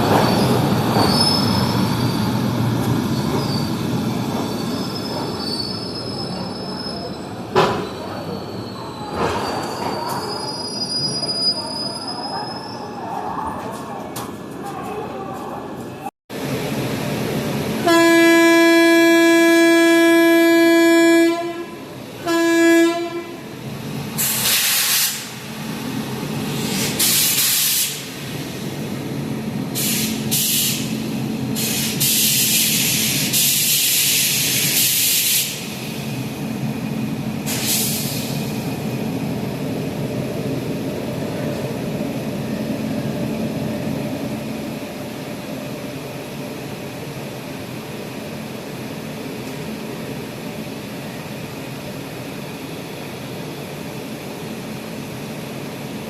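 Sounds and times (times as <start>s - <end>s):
train rumbling: 0.0s - 11.0s, 11.6s - 56.0s
train horn blasts: 17.8s - 23.5s.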